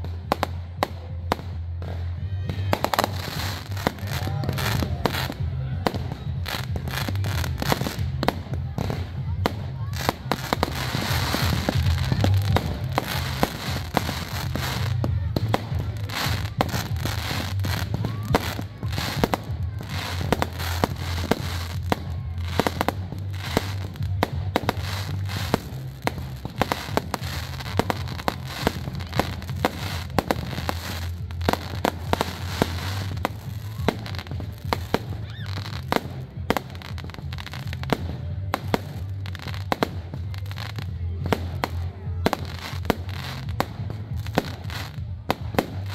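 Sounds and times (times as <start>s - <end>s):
fireworks bangs and crackling: 0.0s - 45.9s.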